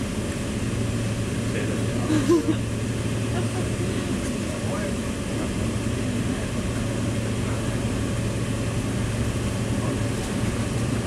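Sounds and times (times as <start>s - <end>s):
train rumbling and humming: 0.0s - 11.0s.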